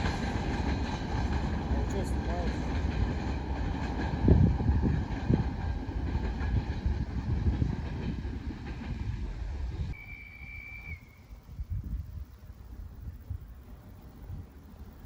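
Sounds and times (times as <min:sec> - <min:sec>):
freight train wheels clattering: 0:00.0 - 0:10.0.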